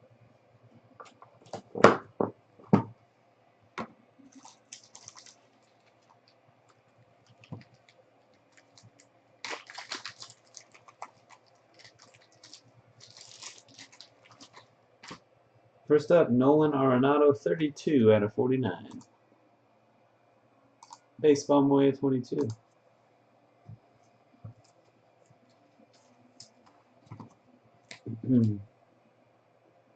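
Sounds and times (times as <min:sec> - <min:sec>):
wrappers crinkling and rustling: 0:04.3 - 0:15.2, 0:24.6 - 0:27.3.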